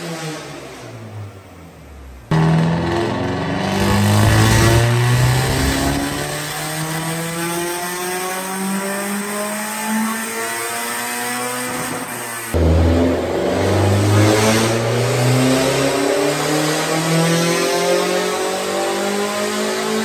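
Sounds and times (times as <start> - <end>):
car engine pulling under load: 2.2 - 6.9.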